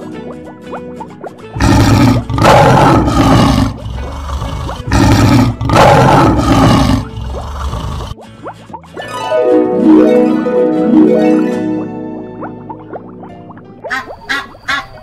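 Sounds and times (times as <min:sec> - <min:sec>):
lion roaring: 0:01.6 - 0:08.2.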